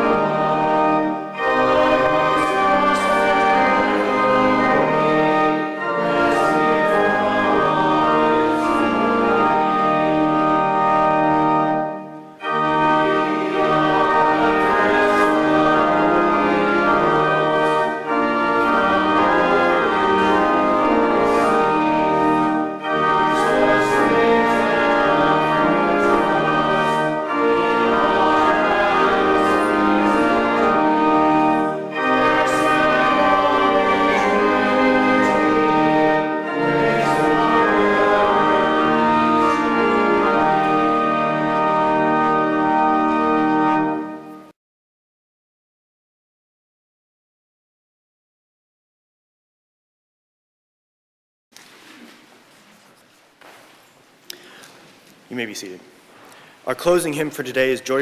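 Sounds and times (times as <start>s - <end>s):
church organ chords: 0.0s - 44.6s.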